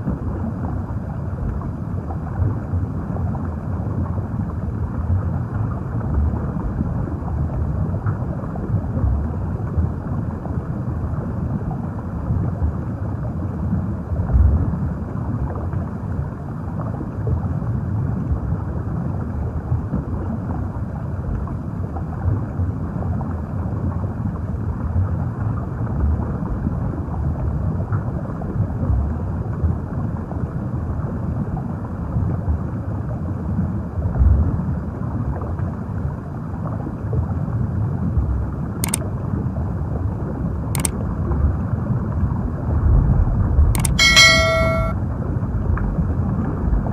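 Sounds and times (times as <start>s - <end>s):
underwater rumble of moving water: 0.0s - 37.3s.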